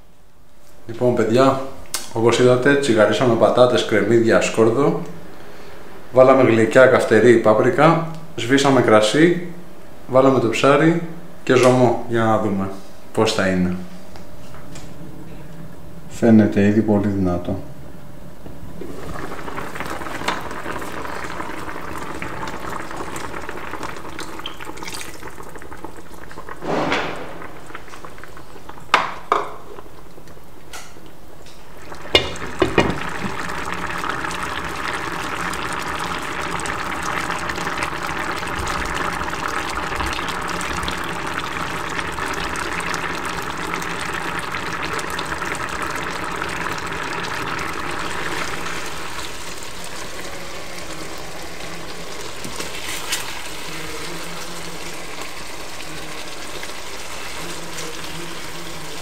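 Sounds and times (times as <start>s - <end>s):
fish stew bubbling in a pot: 18.7s - 30.2s, 31.7s - 59.0s.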